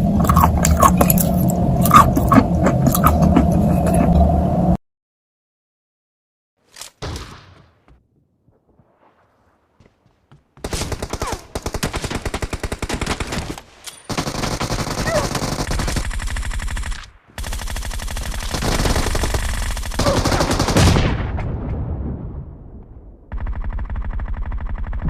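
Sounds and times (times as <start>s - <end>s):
automatic gunfire bursts: 10.7s - 21.0s.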